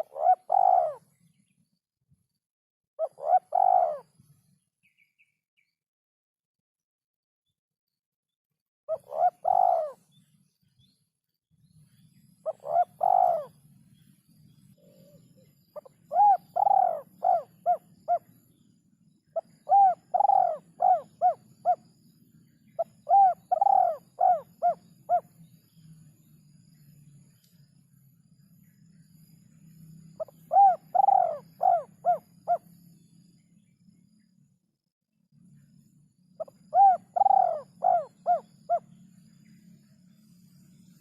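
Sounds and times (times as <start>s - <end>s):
dove cooing: 0.0s - 1.1s, 3.0s - 4.1s, 8.9s - 10.1s, 12.5s - 13.6s, 14.8s - 18.4s, 19.4s - 21.8s, 22.8s - 25.3s, 30.2s - 32.7s, 36.4s - 39.0s
faint low hum: 9.0s - 41.0s.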